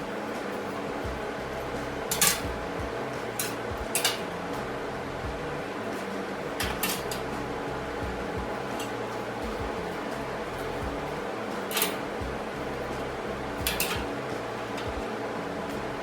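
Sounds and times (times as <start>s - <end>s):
steady low hum: 0.0s - 16.0s
steel pieces clanking: 1.5s - 2.5s, 3.2s - 5.1s, 5.9s - 8.0s, 8.6s - 10.8s, 11.6s - 14.9s.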